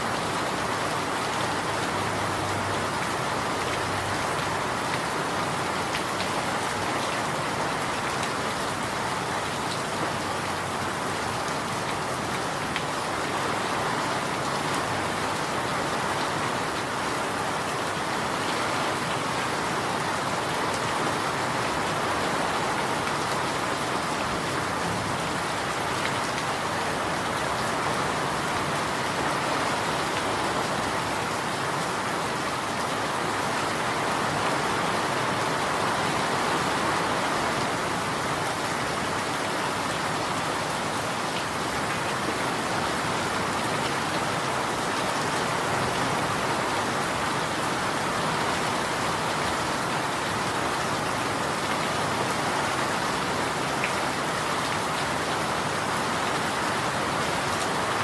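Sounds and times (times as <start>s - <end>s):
rain pattering on surfaces: 0.0s - 58.0s.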